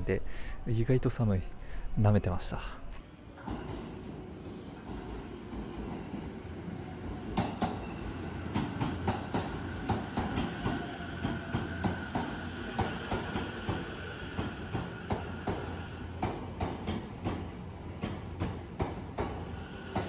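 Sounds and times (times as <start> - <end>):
train wheels clacking over rail joints: 7.3 - 13.8, 14.4 - 20.0.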